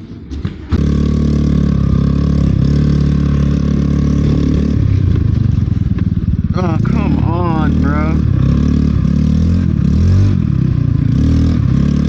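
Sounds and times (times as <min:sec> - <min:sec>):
vehicle engine running loud: 0:00.7 - 0:12.0.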